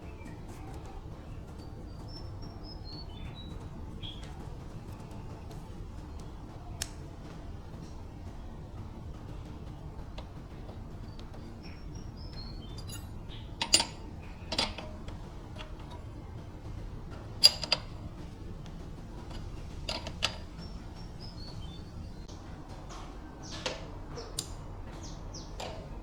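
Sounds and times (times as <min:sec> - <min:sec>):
faint bird chirps: 0:00.0 - 0:18.4
low steady rumble: 0:00.0 - 0:26.0
metallic clinks and taps: 0:09.1 - 0:22.3, 0:22.9 - 0:26.0.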